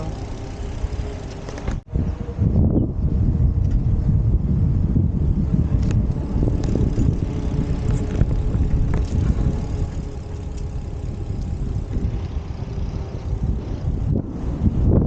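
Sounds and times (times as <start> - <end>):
bicycle clicks and rattles: 0.0 - 1.8, 5.6 - 14.1
wind buffeting microphone: 0.0 - 15.0.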